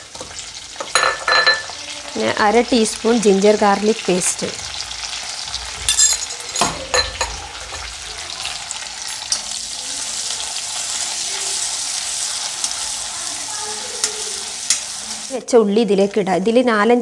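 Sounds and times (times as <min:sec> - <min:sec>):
food sizzling in hot oil: 0:00.0 - 0:16.2
spatula scraping a pan: 0:07.2 - 0:15.3.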